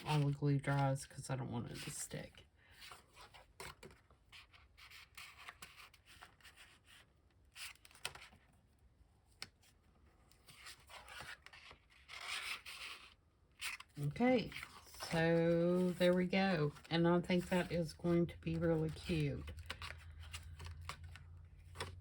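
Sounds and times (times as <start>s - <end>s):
paper taps and rustles: 18.4s - 22.0s.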